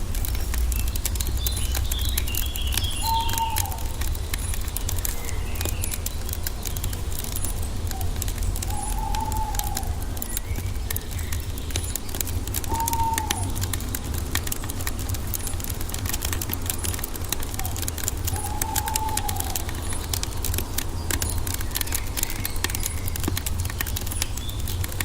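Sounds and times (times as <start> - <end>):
wood fire crackling: 0.0 - 25.0
bird whistles: 2.9 - 3.9, 12.7 - 13.6.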